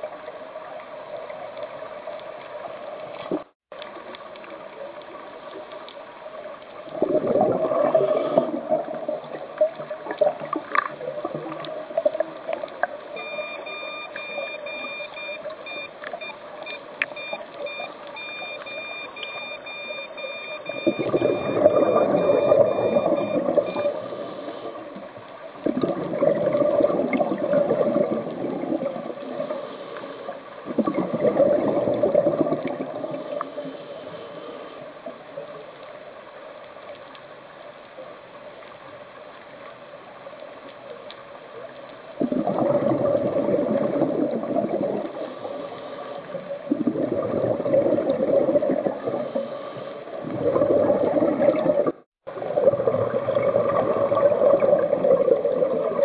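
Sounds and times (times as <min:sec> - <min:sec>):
faint steady hum: 0:00.0 - 0:56.0
diver's exhaled bubbles underwater: 0:06.9 - 0:14.9, 0:19.7 - 0:29.6, 0:30.6 - 0:33.8, 0:42.2 - 0:56.0.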